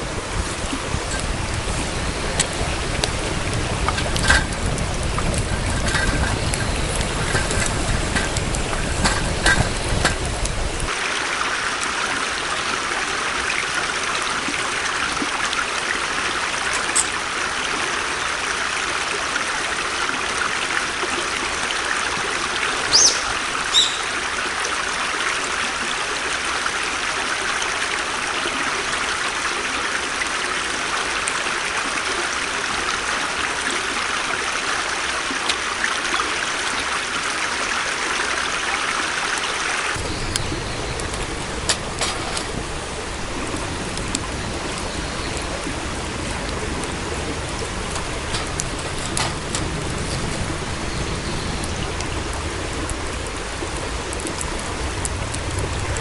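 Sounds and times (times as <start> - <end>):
water flowing: 0.0 - 56.0
low rumble: 0.1 - 10.9, 40.0 - 56.0.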